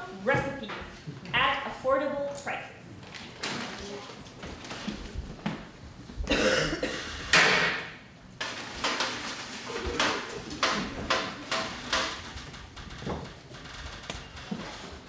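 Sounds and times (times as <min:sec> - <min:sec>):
pots and pans banging: 0:07.4 - 0:13.2.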